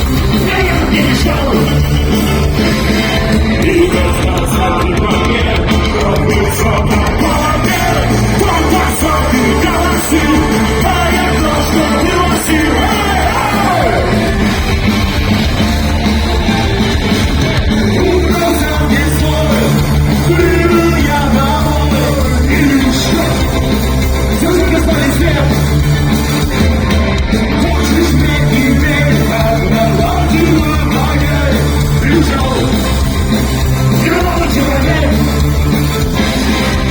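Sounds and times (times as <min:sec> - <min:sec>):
live punk rock band: 0:00.0 - 0:36.9
person singing and shouting: 0:03.5 - 0:14.6, 0:17.7 - 0:23.6.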